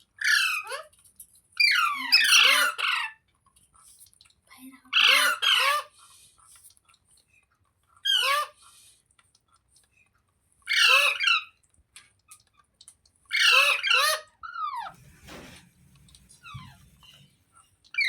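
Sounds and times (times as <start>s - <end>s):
parrot squawking: 1.6s - 3.2s, 4.9s - 5.9s, 8.0s - 8.6s, 10.7s - 11.5s, 13.3s - 14.9s
faint squeaks: 14.7s - 18.0s.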